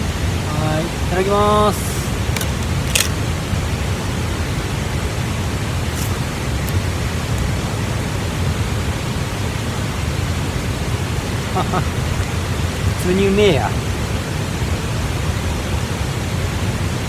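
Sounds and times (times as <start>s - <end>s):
steady rushing noise: 0.0s - 17.0s
sharp clicks or crunches: 2.3s - 3.2s.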